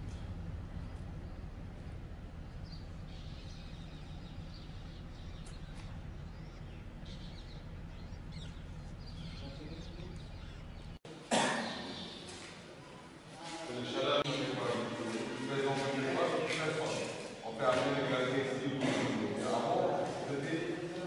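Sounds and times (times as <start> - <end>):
low outdoor rumble: 0.0 - 11.0
birds chirping: 0.0 - 13.2.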